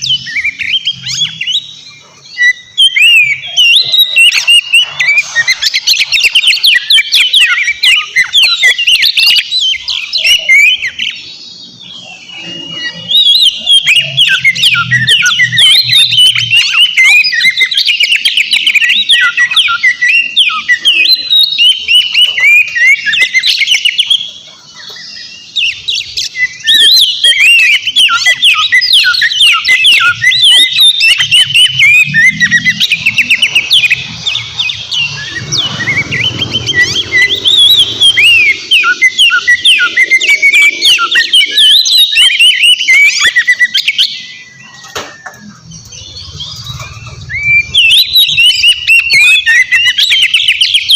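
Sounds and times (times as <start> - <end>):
bird singing whistles and chatter: 0.0 - 50.9.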